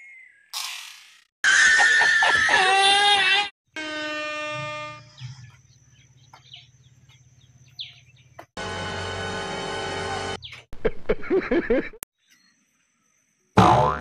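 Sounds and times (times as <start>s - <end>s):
man laughing hysterically: 10.9s - 12.0s.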